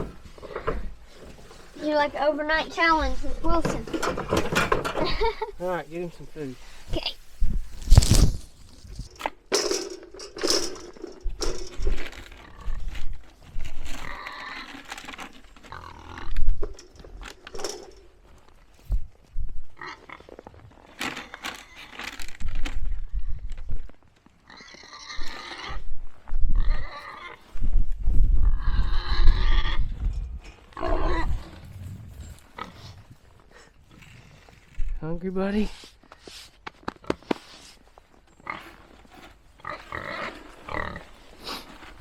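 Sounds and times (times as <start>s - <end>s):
pig squealing grunts: 24.5s - 25.8s, 26.6s - 27.4s, 28.4s - 29.9s, 30.8s - 31.6s
low rumbling: 28.0s - 34.2s.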